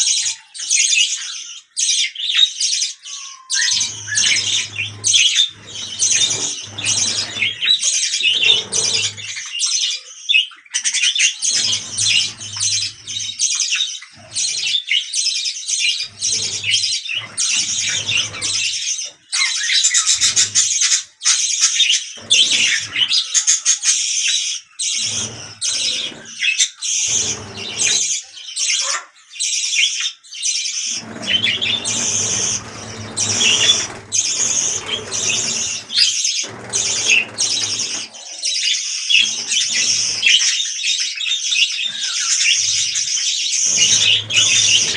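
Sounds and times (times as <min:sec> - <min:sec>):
budgerigars chattering: 0:00.0 - 0:29.2, 0:30.8 - 0:44.9.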